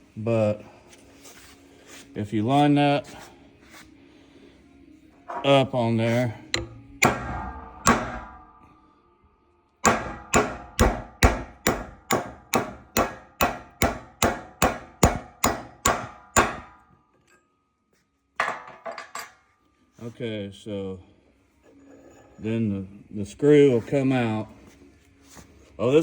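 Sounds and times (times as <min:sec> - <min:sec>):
hammer striking metal: 0:06.5 - 0:08.8, 0:09.8 - 0:17.0.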